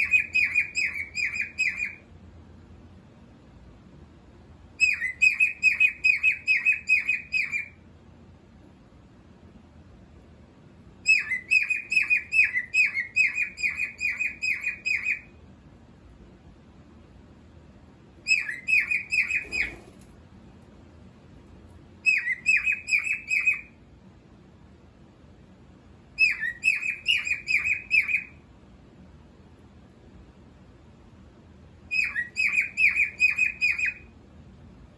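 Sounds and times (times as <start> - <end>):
cockatiel chirping: 0.0 - 2.0, 4.8 - 7.8, 11.0 - 15.3, 18.2 - 20.0, 22.0 - 23.8, 26.2 - 28.4, 31.9 - 34.1.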